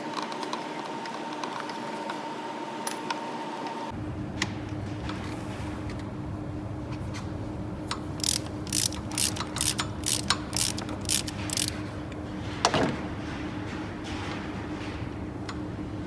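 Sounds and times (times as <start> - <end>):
ratchet wrench clicking: 8.2 - 11.8.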